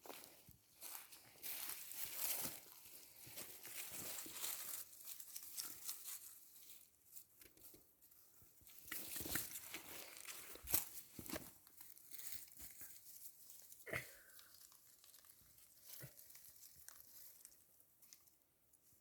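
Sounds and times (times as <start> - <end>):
dry leaves rustling and crackling: 0.8 - 6.9, 14.4 - 18.2.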